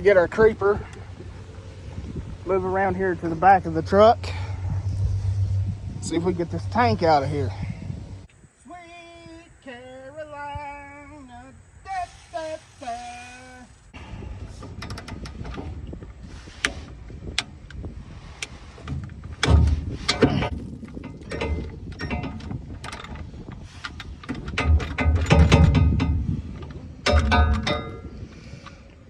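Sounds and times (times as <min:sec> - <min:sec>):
heavy metal clanks: 0:00.0 - 0:08.3, 0:18.8 - 0:28.7
metal tools knocking: 0:19.4 - 0:28.2.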